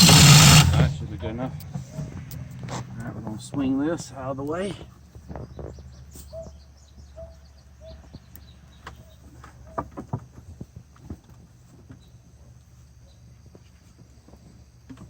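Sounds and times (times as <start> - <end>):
steady low hum: 0.0 - 3.5.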